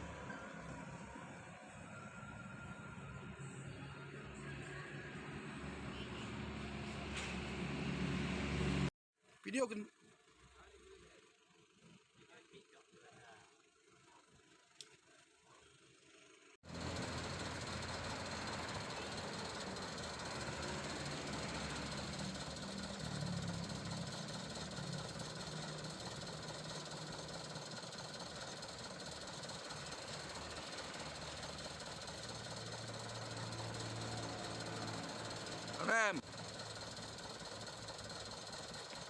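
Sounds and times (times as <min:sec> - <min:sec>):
truck engine running: 0:10.2 - 0:39.0.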